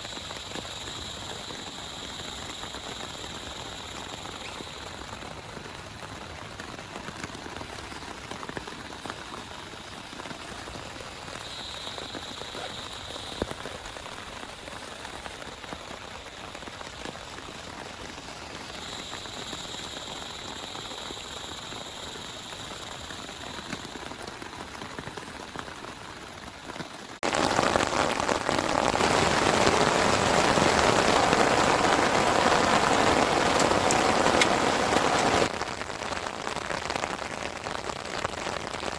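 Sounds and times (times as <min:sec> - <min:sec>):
rain drop ticks: 0:00.0 - 0:38.7
rain falling: 0:00.0 - 0:38.9.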